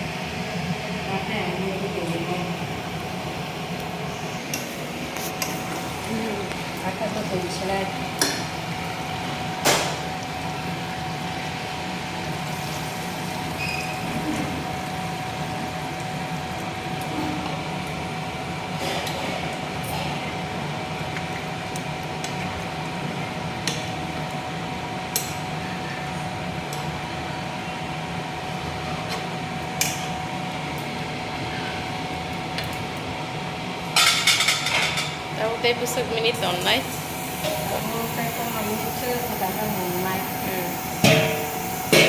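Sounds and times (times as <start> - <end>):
utensil clinking against pot: 41.0 - 42.0.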